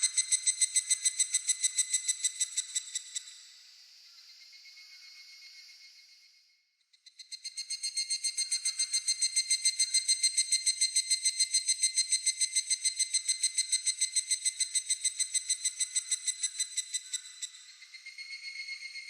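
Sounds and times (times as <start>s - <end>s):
cicada calling: 0.0s - 3.3s, 7.3s - 19.0s.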